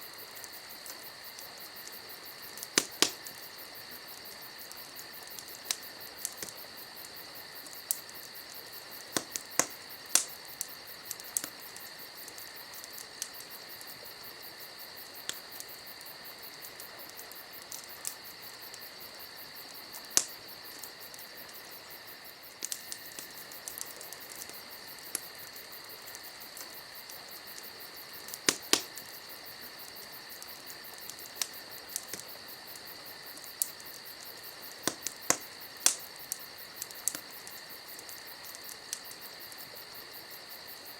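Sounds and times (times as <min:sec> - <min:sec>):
campfire crackling and popping: 0:00.0 - 0:40.9
crickets chirping: 0:00.0 - 0:40.9.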